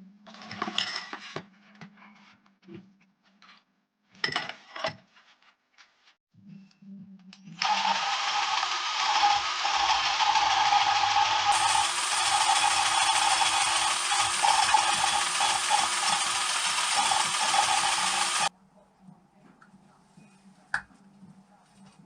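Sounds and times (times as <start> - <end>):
rotary tool grinding metal: 7.6 - 18.5.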